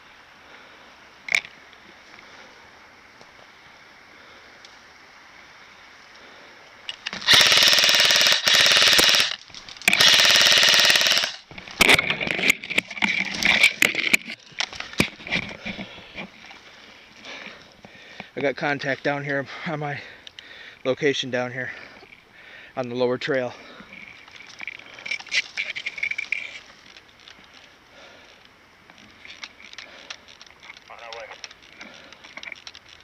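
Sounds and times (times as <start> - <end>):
sharp clicks: 6.9 - 15.1
airsoft gun firing bursts: 7.2 - 11.4.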